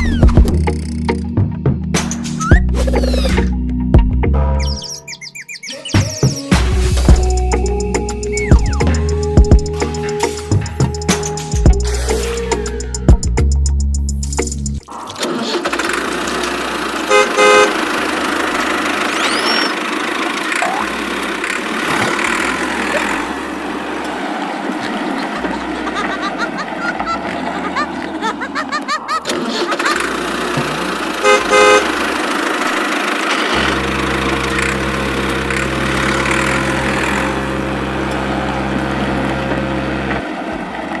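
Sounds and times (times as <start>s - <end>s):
horn honking: 16.5s - 19.8s, 30.1s - 40.2s.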